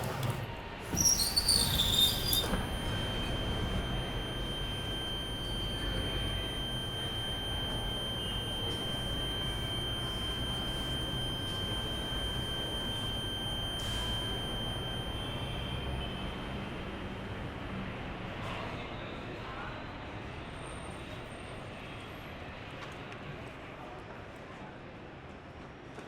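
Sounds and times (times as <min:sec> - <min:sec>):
fainter second tone: 0:00.2 - 0:18.6
high-pitched electronic tone: 0:01.0 - 0:16.8.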